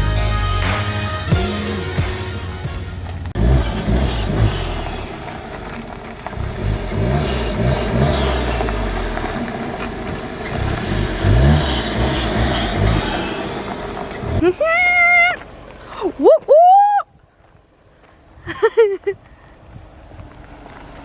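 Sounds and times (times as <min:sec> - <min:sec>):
car engine accelerating: 0:00.0 - 0:14.4.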